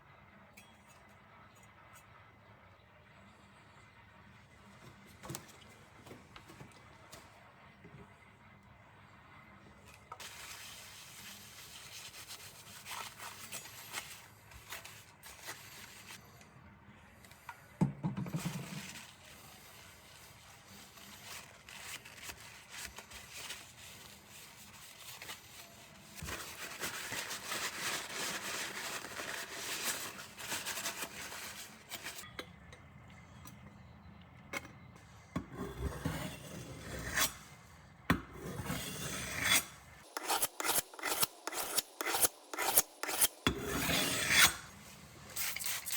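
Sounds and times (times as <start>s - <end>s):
blade grinding on abrasive: 38.4s - 44.7s.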